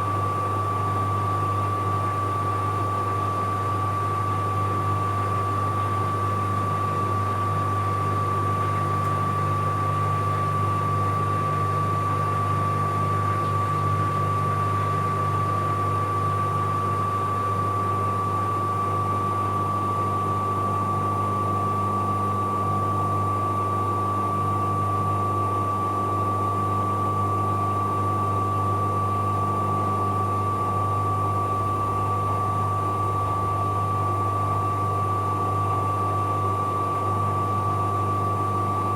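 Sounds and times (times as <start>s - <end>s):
washing machine spinning: 3.6s - 19.6s, 29.8s - 38.9s.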